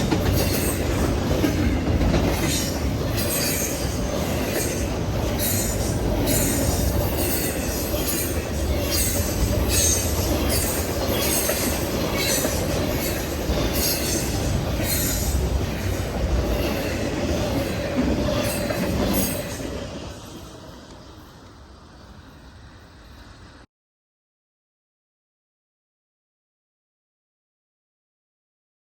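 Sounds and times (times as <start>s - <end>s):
wheels squealing: 0.0s - 21.3s
freight train rumbling: 0.0s - 23.7s.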